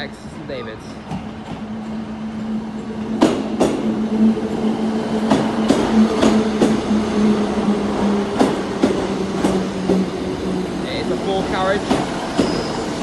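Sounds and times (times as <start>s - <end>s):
train diesel engines humming: 0.0s - 13.0s
wheels clacking over rail joints: 1.0s - 3.9s, 5.2s - 7.0s, 11.0s - 13.0s.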